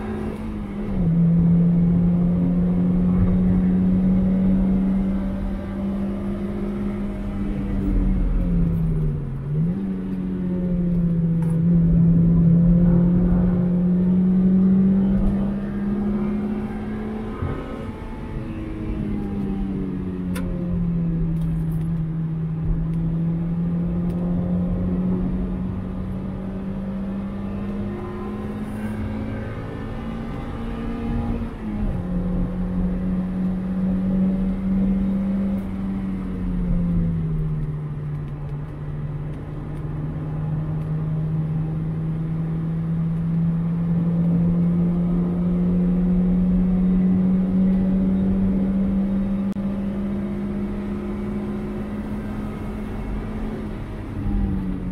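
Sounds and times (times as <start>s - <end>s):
car engine revving high: 9.5s - 21.0s, 39.9s - 54.9s.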